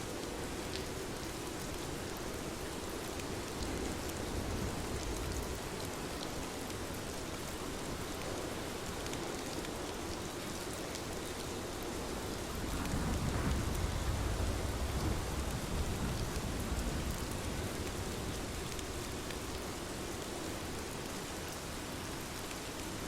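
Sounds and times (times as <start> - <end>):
steady rain hiss: 0.0 - 23.0
sharp raindrop ticks: 9.0 - 19.7.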